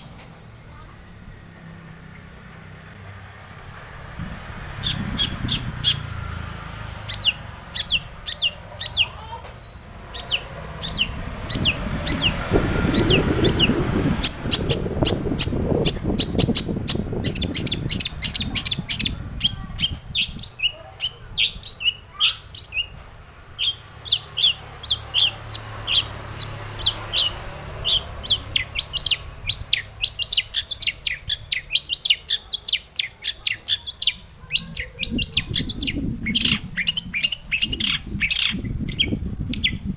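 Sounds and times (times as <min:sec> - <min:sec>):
bird singing sharp notes: 0:04.7 - 0:22.9
low rumble: 0:09.6 - 0:20.4.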